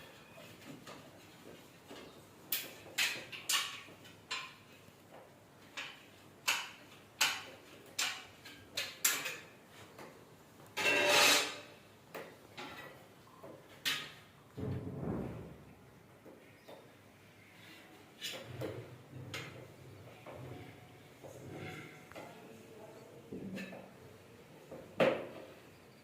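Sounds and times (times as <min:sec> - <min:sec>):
tools knocking and clacking: 0:01.9 - 0:04.9, 0:05.6 - 0:10.2, 0:12.1 - 0:14.8
rattling scrape: 0:10.8 - 0:11.8.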